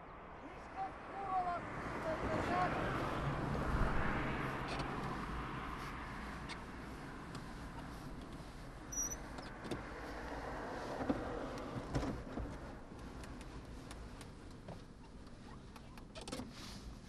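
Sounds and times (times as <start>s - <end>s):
road traffic: 0.0s - 17.0s
car passing by: 0.1s - 12.6s.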